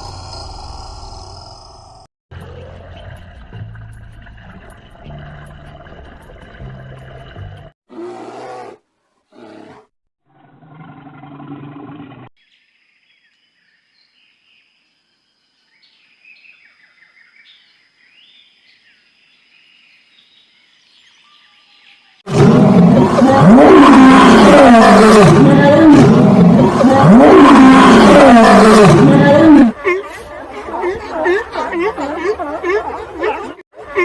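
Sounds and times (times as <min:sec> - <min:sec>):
chorus of animal calls: 0:26.8 - 0:34.0.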